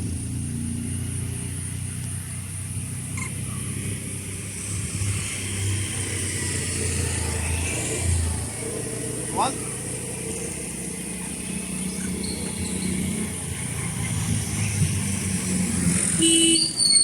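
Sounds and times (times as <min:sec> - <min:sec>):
vehicle engine idling: 0:06.7 - 0:15.6.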